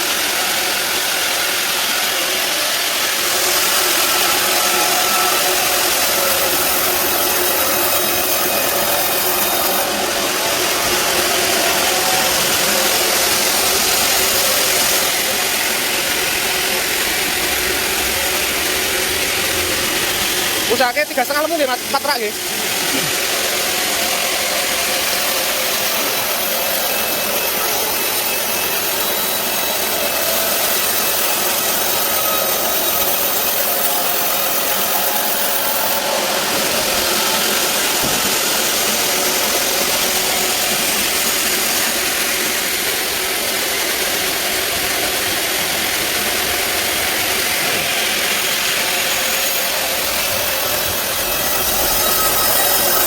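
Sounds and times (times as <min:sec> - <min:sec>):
band saw running: 0:00.0 - 0:53.0.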